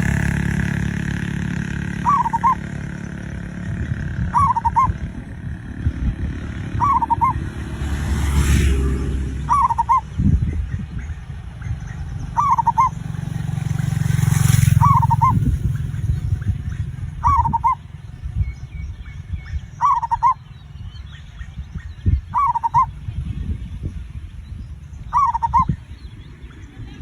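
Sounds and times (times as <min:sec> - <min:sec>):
dove cooing: 0:00.0 - 0:17.9, 0:19.7 - 0:20.4, 0:22.0 - 0:23.0, 0:25.1 - 0:27.0
low rumbling noise: 0:00.0 - 0:27.0.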